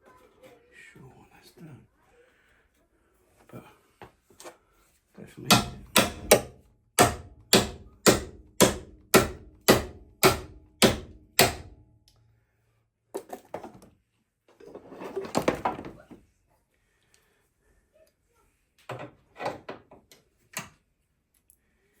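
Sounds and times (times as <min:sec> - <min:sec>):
hammer striking steel bodywork: 0:05.5 - 0:11.8.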